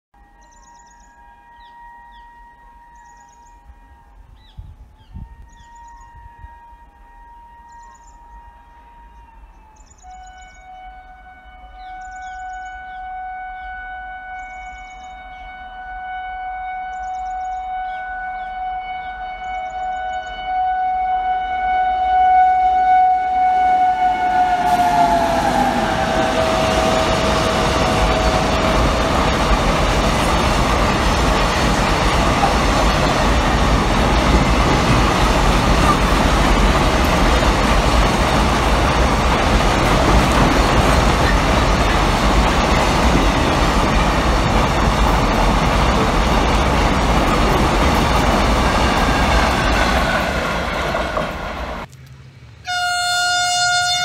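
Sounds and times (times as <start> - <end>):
train horn blast: 0.2 - 51.9, 52.6 - 54.0
freight wagons rolling by: 24.3 - 51.9.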